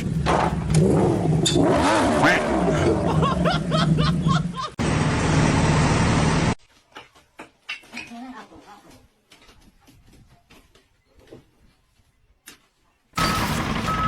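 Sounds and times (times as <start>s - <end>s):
vehicle engine running: 0.0s - 6.6s, 13.2s - 14.0s.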